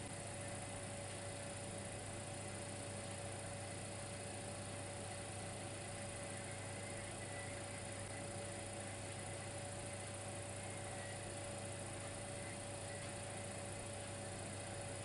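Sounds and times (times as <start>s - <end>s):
electrical hum with hiss: 0.0s - 15.0s
faint constant whine: 0.0s - 15.0s.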